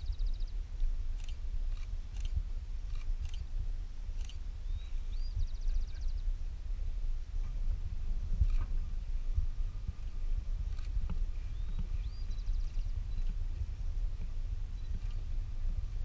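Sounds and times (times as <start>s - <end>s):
wind rumble on microphone: 0.0s - 16.0s
bird whistle and trill: 4.6s - 6.2s, 11.5s - 13.3s.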